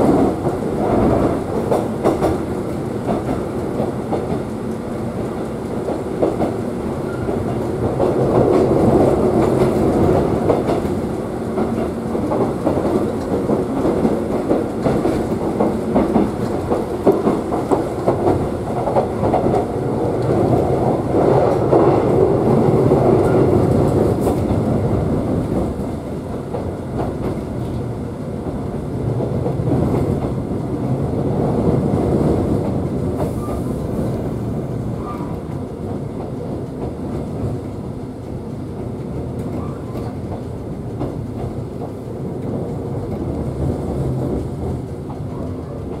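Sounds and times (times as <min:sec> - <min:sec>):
train wheels rumbling on rails: 0:00.0 - 0:46.0
light track clicks: 0:00.1 - 0:22.0.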